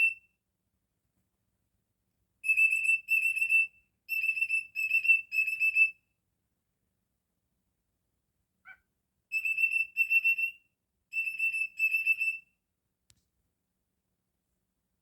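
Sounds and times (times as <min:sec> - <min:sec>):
cockatiel whistling: 0:09.3 - 0:10.5.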